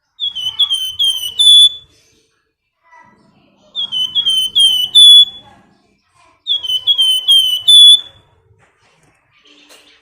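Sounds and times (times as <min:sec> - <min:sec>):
songbird piping whistled call: 0:00.1 - 0:01.9, 0:03.8 - 0:05.4, 0:06.5 - 0:08.2.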